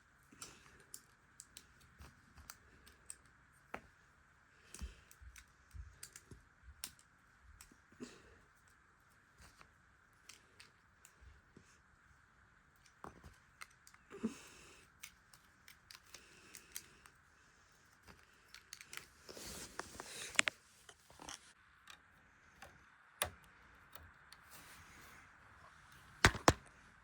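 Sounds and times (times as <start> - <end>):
plastic pieces clicking: 18.1 - 19.1, 26.2 - 26.7
rattle of plastic pieces: 26.2 - 26.6.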